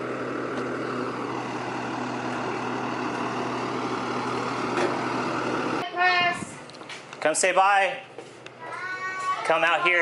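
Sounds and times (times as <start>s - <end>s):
large vehicle engine idling: 0.0s - 6.8s.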